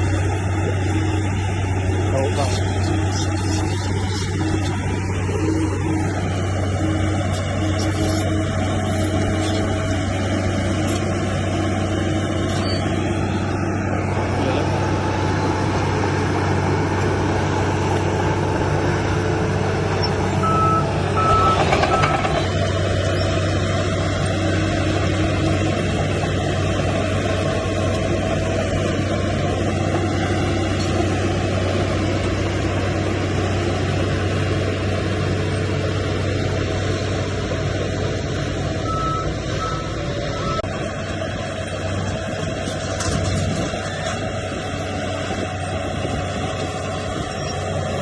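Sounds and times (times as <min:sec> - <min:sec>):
diesel engine droning: 0:00.0 - 0:48.0
reversing alarm beeps: 0:20.4 - 0:22.4, 0:38.8 - 0:40.7.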